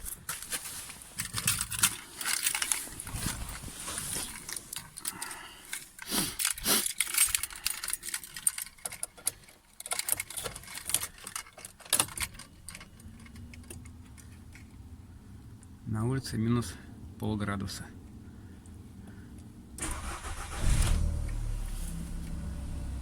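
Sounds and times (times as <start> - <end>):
rustling: 0.0 - 14.9, 21.2 - 22.4
handling noise: 0.0 - 15.0
keys jangling: 1.2 - 3.4, 4.3 - 14.7.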